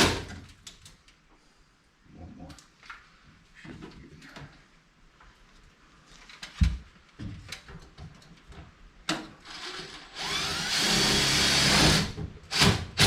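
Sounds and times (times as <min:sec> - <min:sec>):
power drill running: 0:09.4 - 0:13.0.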